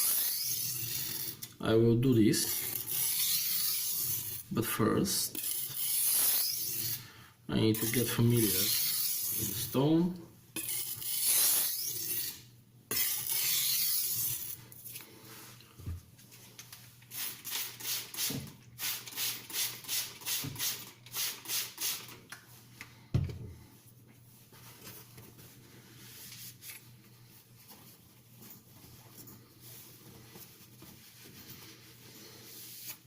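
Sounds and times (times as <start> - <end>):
knife scraping sharpening stone: 5.4 - 7.0, 8.6 - 9.6, 10.6 - 14.6.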